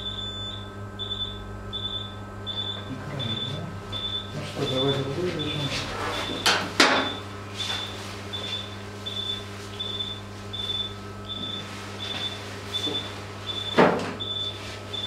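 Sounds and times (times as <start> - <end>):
electrical hum: 0.0 - 15.0
patient monitor beeping: 0.0 - 15.0.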